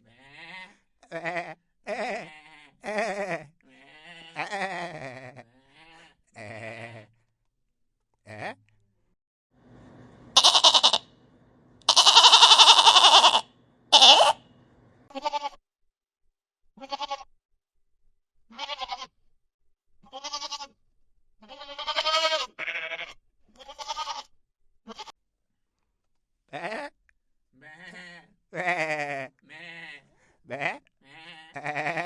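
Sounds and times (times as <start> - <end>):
goats bleating: 0.0 - 7.1, 10.4 - 11.0, 11.9 - 14.4, 15.1 - 15.6, 16.8 - 17.3, 18.5 - 19.1, 20.1 - 20.7, 21.4 - 24.3, 26.5 - 26.9, 27.6 - 32.0.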